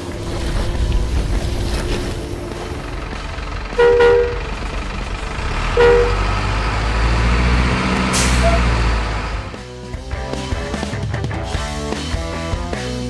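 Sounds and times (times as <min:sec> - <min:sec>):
low engine rumble: 0:00.0 - 0:11.1
truck horn honks: 0:02.6 - 0:09.1.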